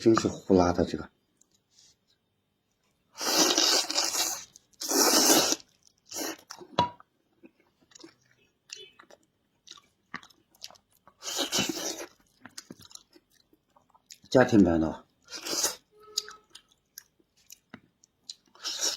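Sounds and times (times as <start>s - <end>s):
chewing and mouth sounds: 3.2s - 14.4s, 15.2s - 18.9s
loud crunching chews: 7.4s - 14.3s, 15.3s - 18.9s.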